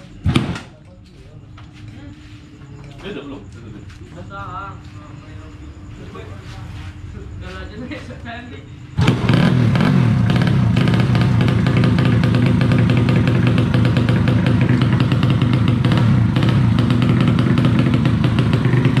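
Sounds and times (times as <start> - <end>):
motorcycle engine running: 8.9 - 19.0.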